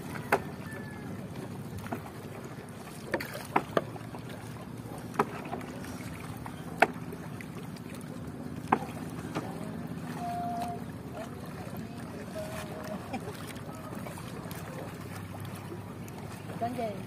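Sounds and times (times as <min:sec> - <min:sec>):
water splashing and lapping: 0:00.0 - 0:17.0
low steady hum: 0:04.0 - 0:17.0
pole knocking on bamboo: 0:06.8 - 0:07.0.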